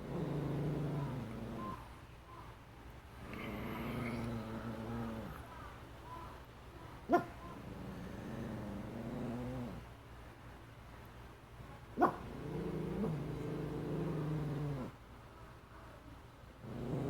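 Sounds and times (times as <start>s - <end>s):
dog growling: 0.0s - 1.8s, 3.2s - 5.5s, 7.1s - 9.9s, 12.0s - 15.0s, 16.6s - 17.0s
dog barking: 7.1s - 7.4s, 12.0s - 12.3s.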